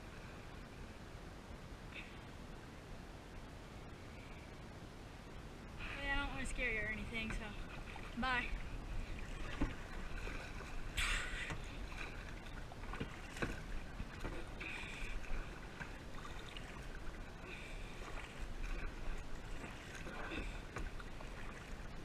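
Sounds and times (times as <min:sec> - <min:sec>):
paddle splashing in water: 0:07.1 - 0:22.0.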